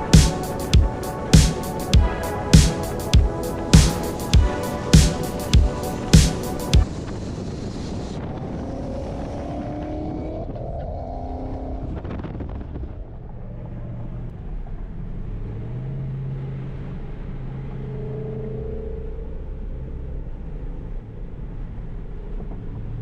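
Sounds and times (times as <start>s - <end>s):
car engine revving and droning: 13.5s - 23.0s.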